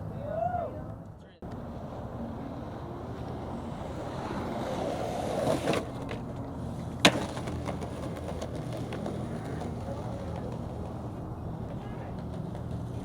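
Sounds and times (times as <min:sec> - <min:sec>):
skateboard wheels rolling on concrete: 0:00.1 - 0:13.0
skateboard sharp crack: 0:03.2 - 0:13.0.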